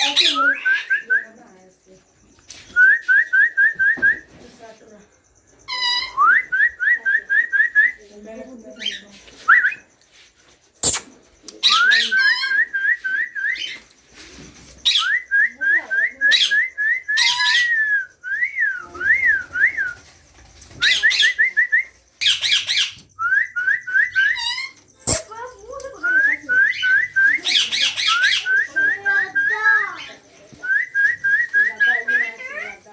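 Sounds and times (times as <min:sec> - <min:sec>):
parakeet chicks chirping: 0:00.0 - 0:02.7, 0:04.4 - 0:06.3, 0:08.0 - 0:09.4, 0:10.8 - 0:12.7, 0:13.5 - 0:17.8, 0:19.9 - 0:23.1, 0:24.1 - 0:32.9
harsh raspy squawks: 0:05.6 - 0:06.3
sharp clicks: 0:10.8 - 0:11.6.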